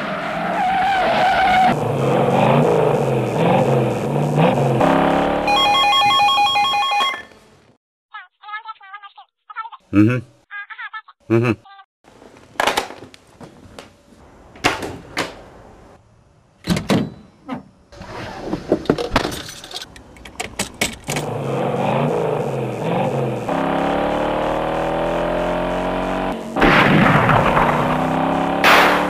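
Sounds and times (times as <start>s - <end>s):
car engine accelerating: 1.4s - 5.8s, 21.2s - 29.0s.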